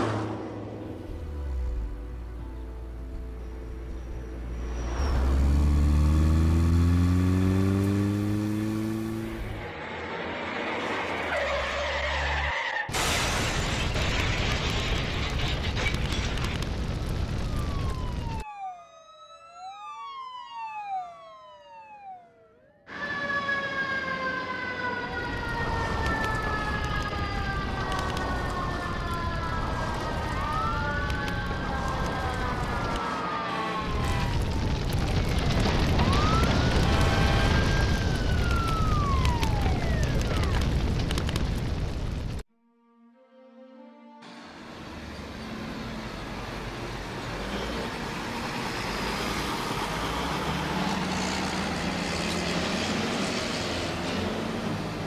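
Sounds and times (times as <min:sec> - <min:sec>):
emergency sirens wailing: 0:17.2 - 0:40.8.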